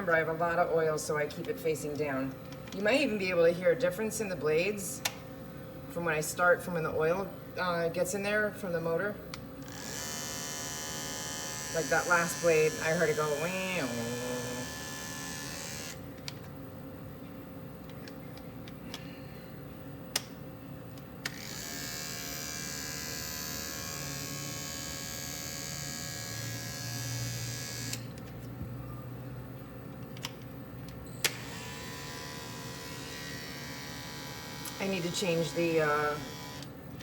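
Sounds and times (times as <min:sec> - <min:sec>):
dog clipper buzzing: 0:09.6 - 0:16.0, 0:21.2 - 0:28.2, 0:31.2 - 0:36.8.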